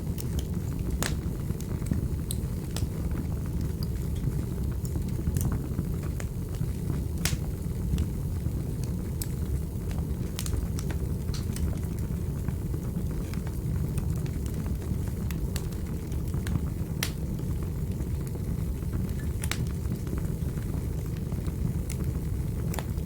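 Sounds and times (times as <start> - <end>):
fire crackling and popping: 0.0 - 23.0
low rumble of fire: 0.0 - 23.0.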